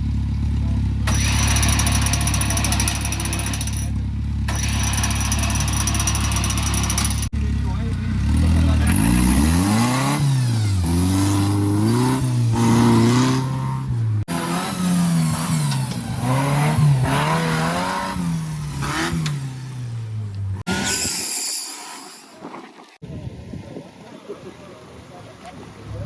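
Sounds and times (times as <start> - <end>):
vehicle engine revving: 4.0 - 20.7.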